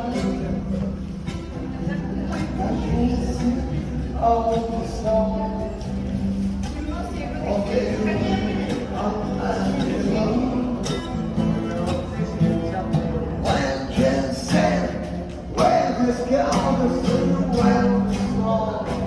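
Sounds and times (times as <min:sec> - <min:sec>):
acoustic guitar strumming: 0:00.0 - 0:19.0
person singing: 0:07.4 - 0:19.0.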